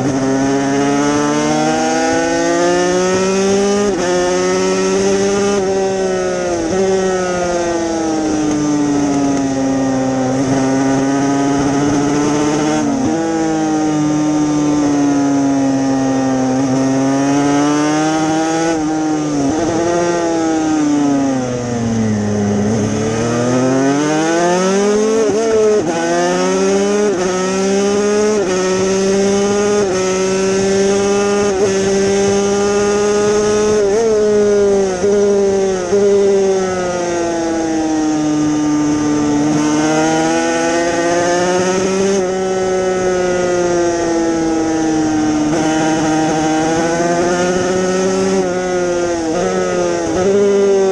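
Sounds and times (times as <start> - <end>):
racing motorcycle engine revving: 0.0 - 50.9.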